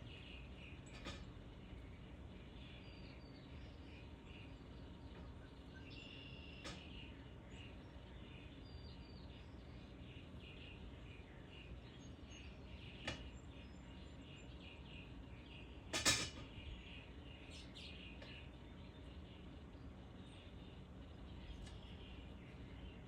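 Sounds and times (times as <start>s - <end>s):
small birds chirping faintly: 0.0s - 23.0s.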